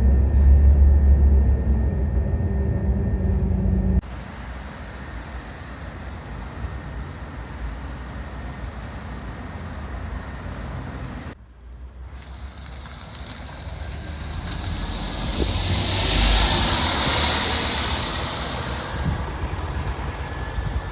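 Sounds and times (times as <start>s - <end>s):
bus engine idling: 0.0s - 11.4s
bus pulling away: 0.0s - 20.9s.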